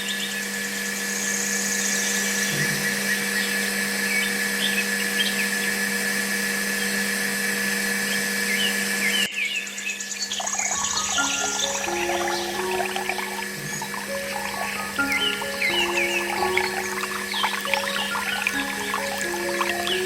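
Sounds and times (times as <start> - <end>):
birds chirping: 8.5 - 20.0.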